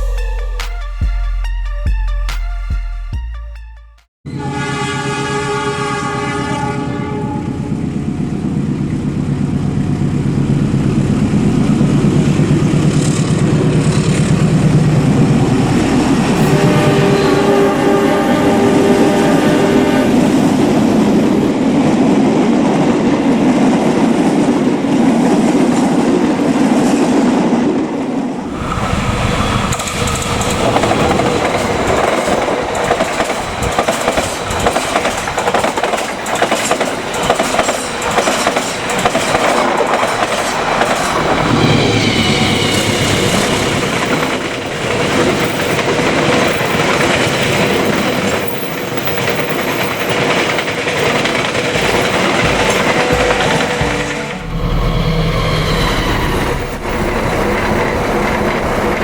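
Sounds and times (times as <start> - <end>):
diesel locomotive engine drone: 0.0 - 1.8, 4.3 - 59.0
train wheels clacking on rails: 11.2 - 17.4, 28.4 - 59.0.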